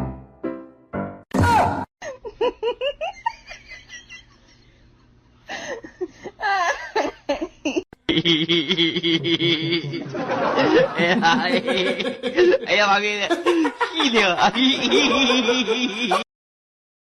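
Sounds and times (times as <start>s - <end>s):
person laughing: 2.0s - 4.6s, 5.5s - 16.3s.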